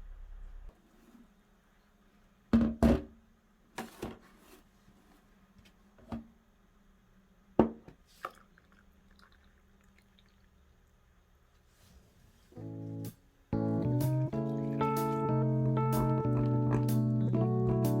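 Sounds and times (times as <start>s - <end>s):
faint steady hum: 0.0s - 18.0s
objects knocking and thudding: 2.5s - 3.2s, 7.6s - 8.0s.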